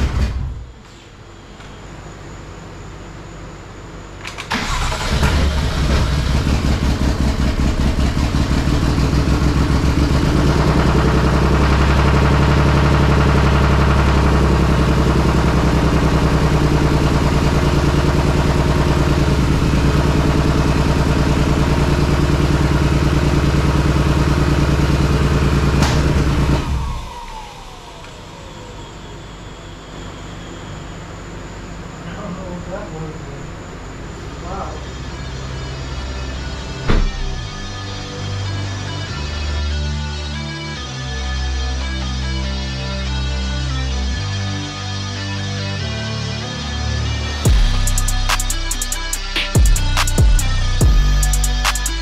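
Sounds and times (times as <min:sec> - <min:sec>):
engine cranking and starting: 0:04.2 - 0:28.9
car engine idling: 0:04.5 - 0:36.3, 0:47.4 - 0:52.0.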